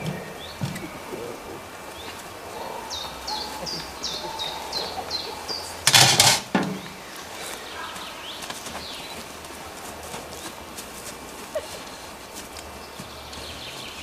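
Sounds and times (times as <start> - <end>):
songbird chirping: 0.0 - 14.0.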